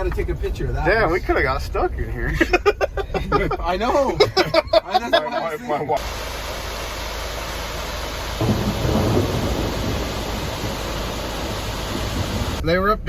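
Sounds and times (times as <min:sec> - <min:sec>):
floodwater rushing: 0:06.0 - 0:12.6.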